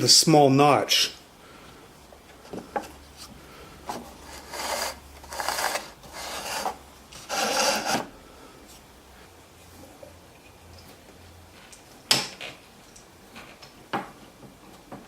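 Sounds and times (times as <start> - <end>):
wood scraping against wood: 2.4 - 8.2.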